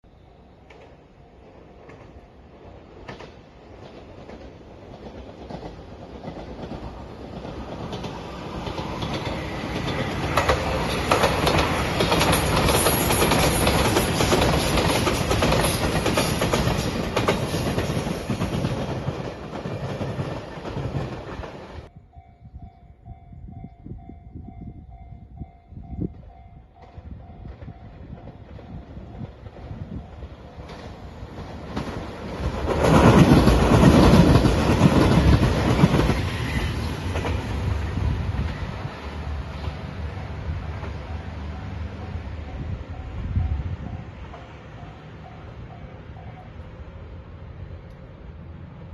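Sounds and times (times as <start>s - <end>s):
train approaching: 0.0s - 48.9s
train passing: 0.0s - 48.9s
level crossing warning bell: 21.9s - 31.3s, 41.1s - 46.7s.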